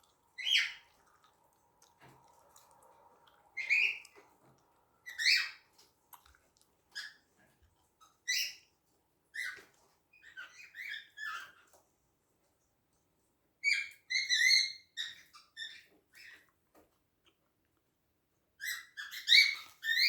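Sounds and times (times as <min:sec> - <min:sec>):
cockatiels chirping: 0:00.4 - 0:00.9, 0:03.6 - 0:04.2, 0:05.0 - 0:05.8, 0:08.2 - 0:08.7, 0:09.4 - 0:11.8, 0:13.6 - 0:16.5, 0:18.6 - 0:20.0.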